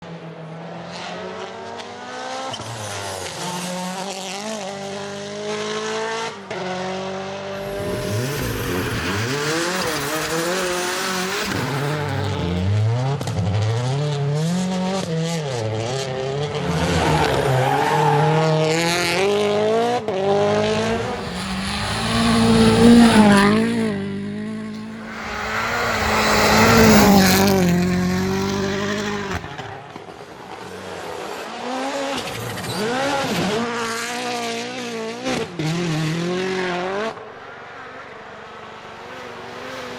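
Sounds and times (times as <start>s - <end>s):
sliding surface noise: 7.6s - 12.6s, 20.5s - 29.5s
tyre squeal: 7.6s - 12.6s
rally car engines revving: 7.6s - 29.6s.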